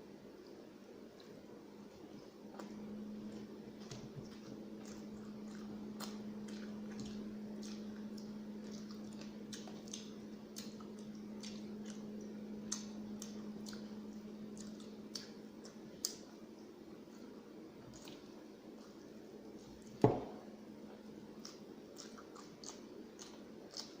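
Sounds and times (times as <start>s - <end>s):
steady low hum: 0.0s - 24.0s
wet mouth smacks chewing: 3.4s - 16.3s, 21.4s - 24.0s.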